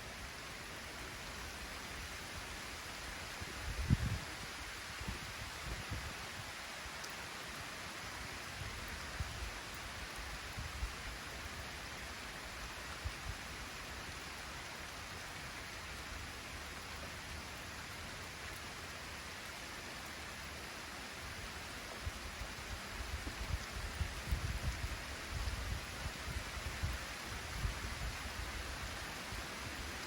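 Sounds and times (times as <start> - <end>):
light rain hissing: 0.0 - 30.0
wind gusts: 1.9 - 6.7, 21.4 - 30.0.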